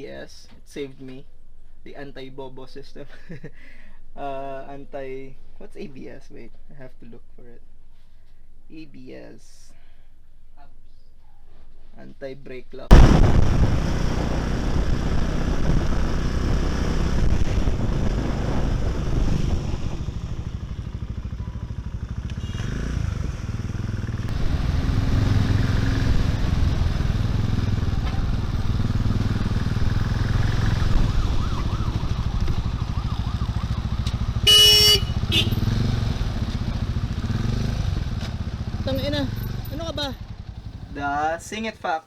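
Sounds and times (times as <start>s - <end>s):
motorcycle engine running: 13.0s - 41.1s
vehicle horn honking: 22.3s - 22.8s, 34.3s - 35.7s.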